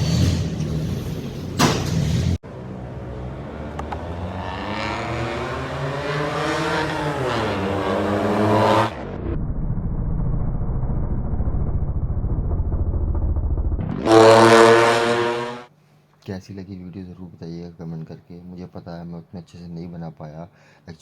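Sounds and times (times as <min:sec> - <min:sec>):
car engine revving: 0:02.4 - 0:15.7
low engine rumble: 0:09.1 - 0:14.8.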